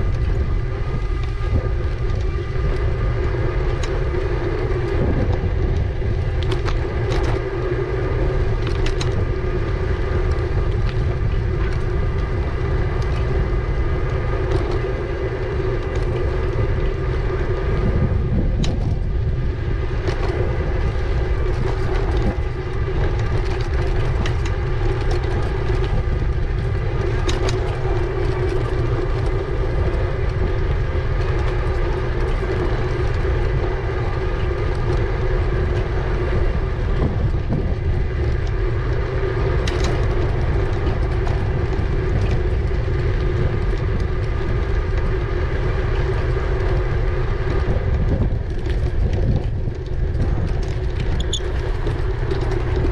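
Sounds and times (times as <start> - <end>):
light clicks and knocks from bike: 0.0 - 52.9
steady hum: 0.0 - 52.9
tyre noise: 0.0 - 52.9
wind rumble on microphone: 0.0 - 52.9.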